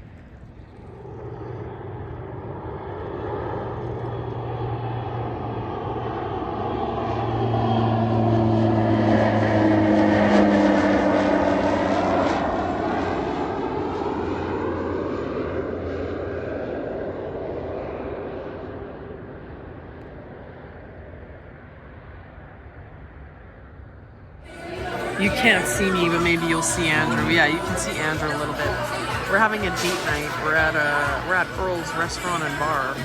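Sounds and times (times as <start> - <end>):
airplane flying overhead: 0.0 - 33.0.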